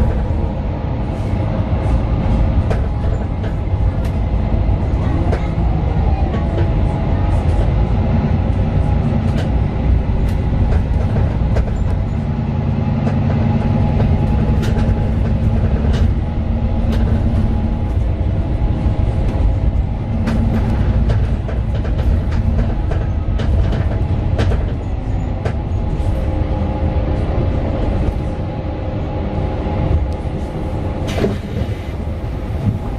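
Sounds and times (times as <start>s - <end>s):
bus diesel engine rumble: 0.0s - 32.9s
rattles and clicks in bus: 0.0s - 32.9s
road noise: 0.0s - 32.9s.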